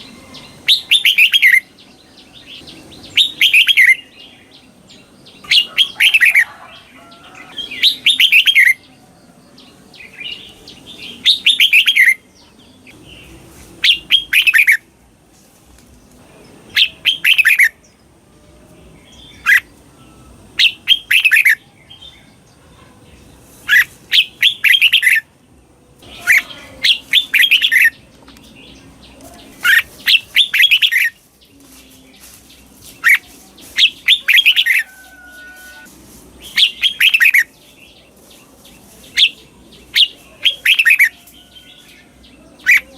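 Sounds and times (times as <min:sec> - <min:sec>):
bird singing whistled phrases: 0:00.0 - 0:01.7, 0:03.1 - 0:04.1.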